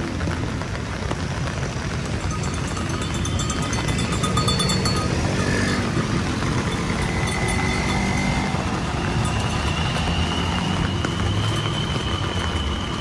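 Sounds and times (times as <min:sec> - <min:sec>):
rain falling: 0:00.0 - 0:13.0
faint thin whistling tones: 0:09.0 - 0:13.0.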